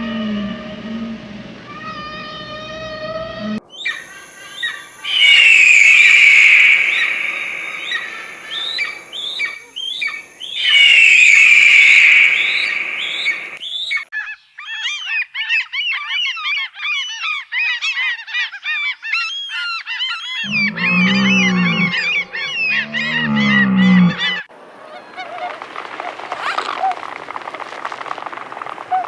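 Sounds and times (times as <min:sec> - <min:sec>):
bird screeches: 0:01.7 - 0:24.5
short sharp bird calls: 0:03.7 - 0:16.2, 0:18.5 - 0:24.5
flock of birds chattering: 0:03.8 - 0:15.0, 0:18.0 - 0:29.0.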